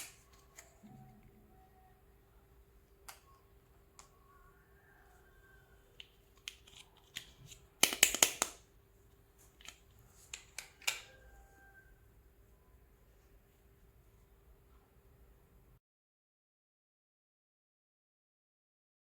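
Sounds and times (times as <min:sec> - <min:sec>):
plastic toy pieces clicking: 0:06.4 - 0:08.6.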